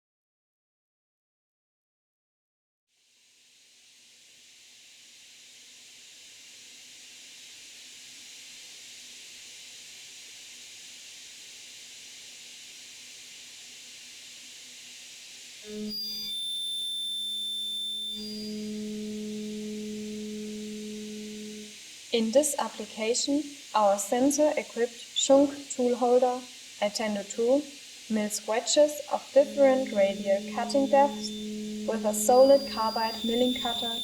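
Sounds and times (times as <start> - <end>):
steady hiss: 3.3 - 34.0
end mill cutting with loud whine: 15.3 - 22.0, 26.6 - 34.0.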